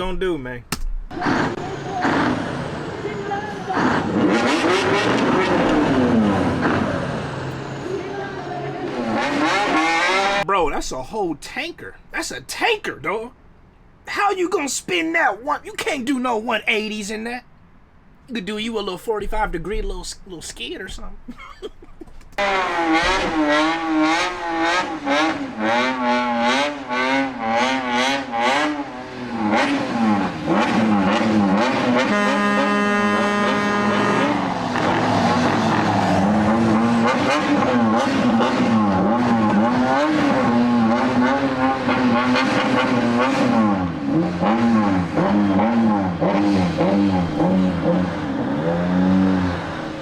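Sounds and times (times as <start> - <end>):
engine revving hard: 1.1 - 10.5, 22.4 - 50.0.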